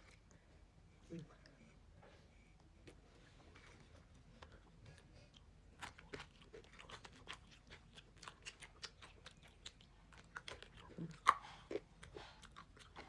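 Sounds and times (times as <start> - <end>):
crunchy snack chewing: 5.7 - 13.0.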